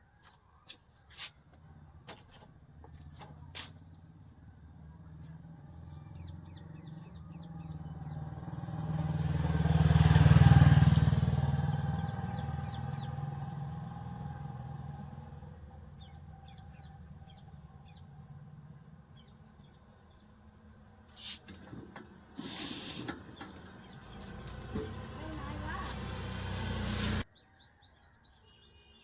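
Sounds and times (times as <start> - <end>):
vehicle engine passing by: 3.9 - 20.2, 22.5 - 27.3.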